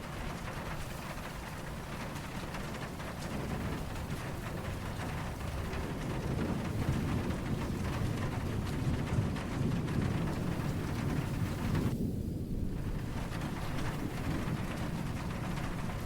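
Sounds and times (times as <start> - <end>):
low rumbling thunder: 0.0 - 16.0
steady rain falling: 0.0 - 16.0.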